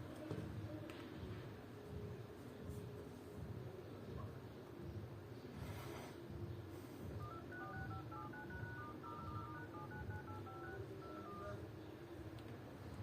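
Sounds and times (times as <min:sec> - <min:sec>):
faint low hum: 0:00.0 - 0:13.0
telephone keypad tones: 0:07.2 - 0:11.7.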